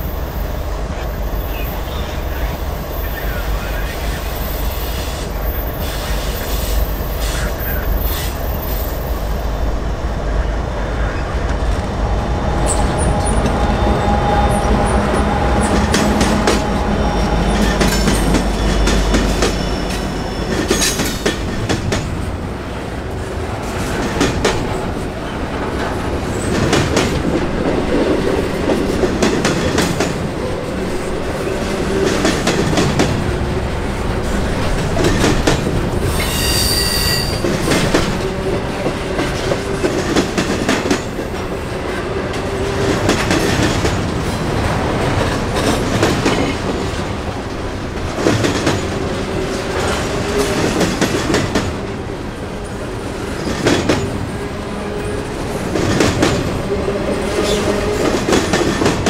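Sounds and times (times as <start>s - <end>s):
railroad wheels clicking over joints: 12.6s - 59.0s
wheel squeal: 36.2s - 37.5s.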